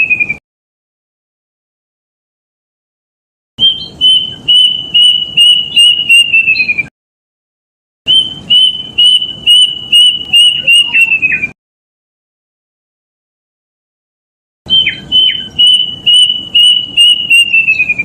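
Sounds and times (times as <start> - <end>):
cuckoo whistled notes: 0.0 - 0.4, 3.6 - 6.9, 8.1 - 11.6, 14.7 - 18.0.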